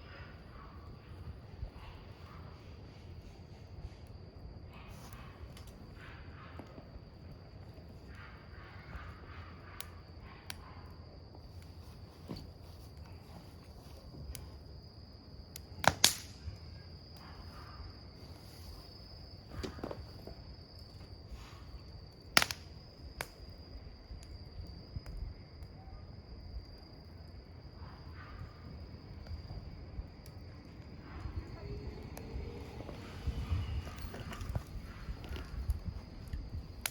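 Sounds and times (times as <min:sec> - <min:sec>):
campfire crackling and popping: 0:05.0 - 0:06.0, 0:11.3 - 0:17.4, 0:21.8 - 0:25.6, 0:28.9 - 0:36.9.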